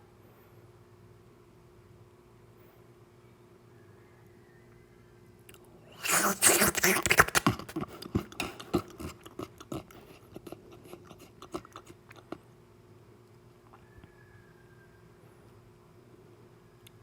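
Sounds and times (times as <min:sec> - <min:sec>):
mouth clicks and smacks: 0:05.5 - 0:12.5
wet chewing: 0:06.0 - 0:12.5.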